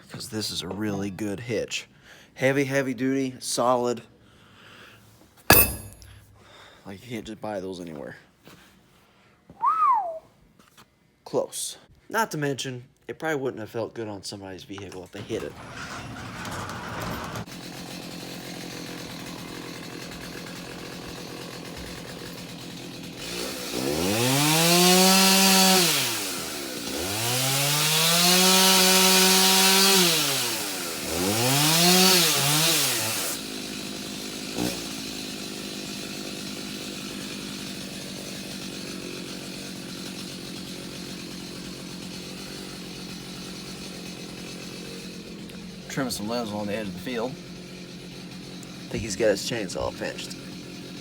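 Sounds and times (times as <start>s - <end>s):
chainsaw revving and cutting: 15.4s - 51.0s
chainsaw engine idling: 17.4s - 51.0s.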